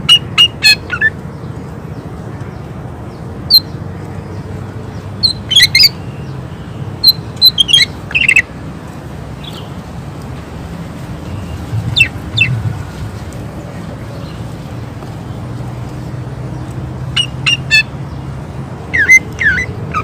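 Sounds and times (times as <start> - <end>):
bird giving sharp piercing calls: 5.2 - 6.2, 7.0 - 8.5, 11.4 - 12.9, 17.1 - 17.9, 18.9 - 20.0
steady low hum: 11.2 - 13.9.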